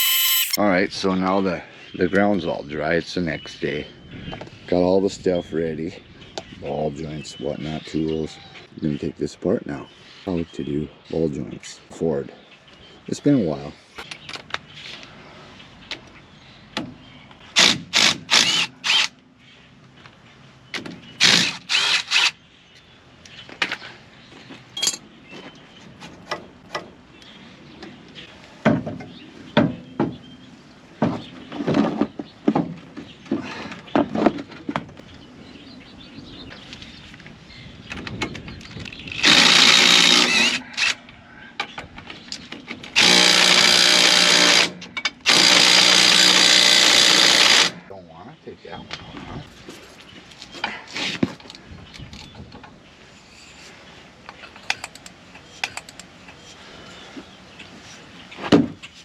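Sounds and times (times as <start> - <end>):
pneumatic impact wrench hammering: 0.0 - 0.6, 39.2 - 41.0, 43.0 - 47.8.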